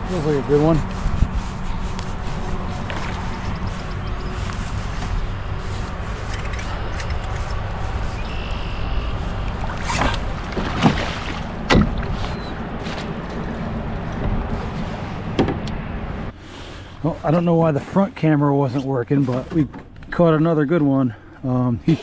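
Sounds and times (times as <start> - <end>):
steady low rumble: 0.0 - 21.8
sharp splashes or knocks: 9.6 - 12.2.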